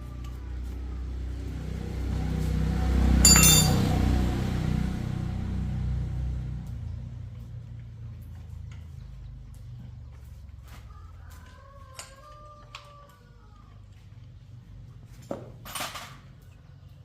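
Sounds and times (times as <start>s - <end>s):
motor engine low hum: 0.0s - 11.3s
sharp metallic clink: 3.2s - 4.0s.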